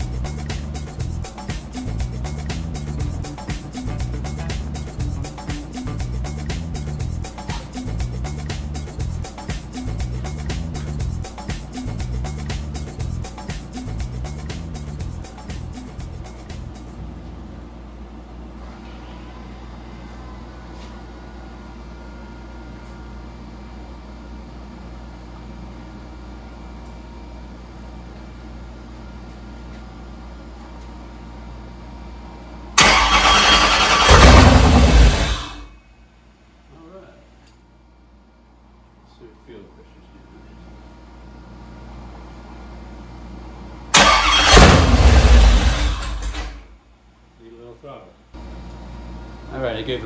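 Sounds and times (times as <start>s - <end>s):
low mechanical hum of machinery: 0.0s - 50.0s
engine running loudly: 32.8s - 35.7s, 44.0s - 46.6s.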